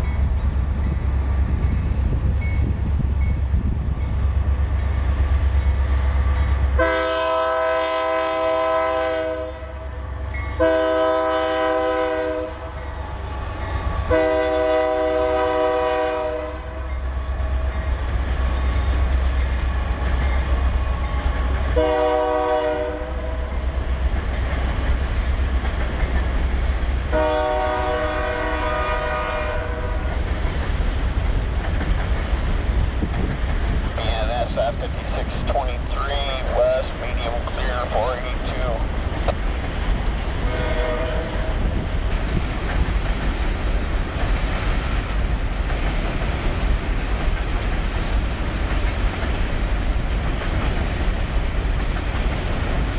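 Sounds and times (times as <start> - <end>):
train rumbling past: 0.0 - 52.9
locomotive air horn blasts: 6.8 - 10.0, 10.6 - 12.8, 14.0 - 16.9, 21.7 - 23.6, 27.1 - 30.1, 40.4 - 41.7.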